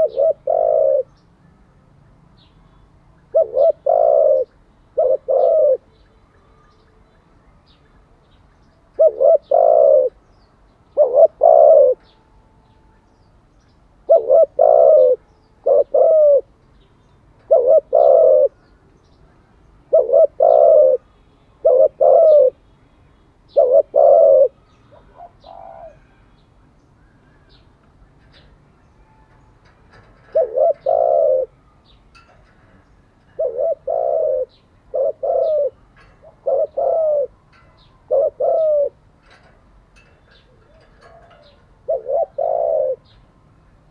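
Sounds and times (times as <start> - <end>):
dove cooing: 0.0 - 1.2, 3.3 - 6.0, 8.9 - 10.2, 10.9 - 12.1, 14.0 - 16.5, 17.4 - 18.7, 19.9 - 22.6, 23.5 - 26.3, 28.2 - 43.3.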